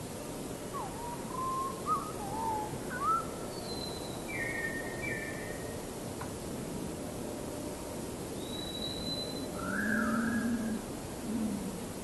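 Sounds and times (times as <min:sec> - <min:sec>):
steady background hiss: 0:00.0 - 0:12.0
bird whistling: 0:00.8 - 0:05.4, 0:08.4 - 0:10.5.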